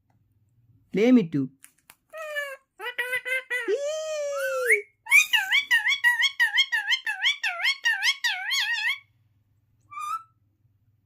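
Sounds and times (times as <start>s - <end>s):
parrot calling: 2.1s - 9.1s, 9.9s - 10.4s
parrot chirp: 2.1s - 9.1s, 9.9s - 10.4s
parrot warbling whistles: 9.9s - 10.4s.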